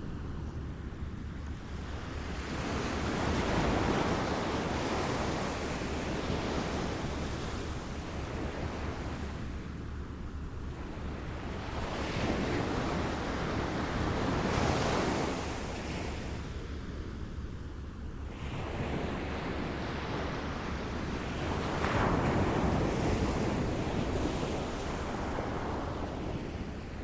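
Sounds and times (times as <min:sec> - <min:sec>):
small waves lapping at shore: 0:18.3 - 0:27.0.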